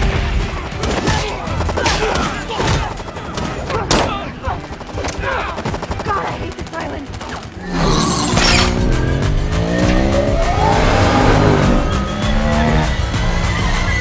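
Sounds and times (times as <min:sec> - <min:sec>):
rapid gunfire: 0:00.0 - 0:10.2
car engine revving: 0:07.6 - 0:14.0
tyres squealing: 0:07.6 - 0:14.0.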